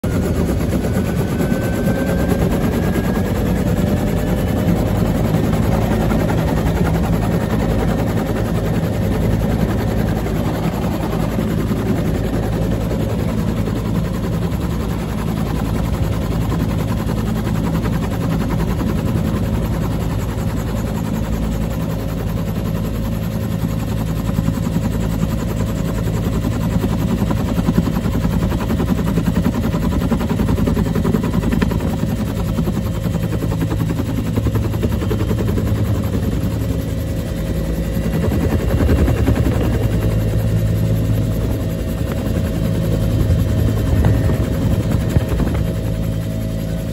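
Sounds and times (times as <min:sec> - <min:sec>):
turbine drone: 0:00.0 - 0:46.9
helicopter rotor thudding: 0:38.0 - 0:46.9.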